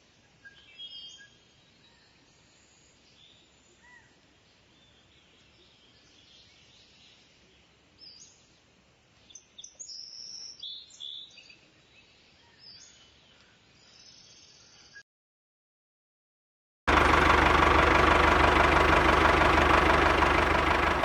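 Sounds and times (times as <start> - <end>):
faint outdoor hiss: 0.0 - 15.0
small birds chirping: 0.4 - 15.0.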